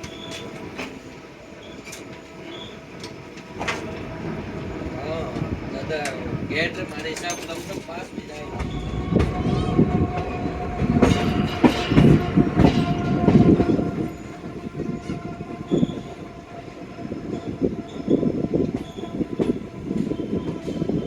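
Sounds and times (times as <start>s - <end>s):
train rolling on rails: 0.0s - 21.0s.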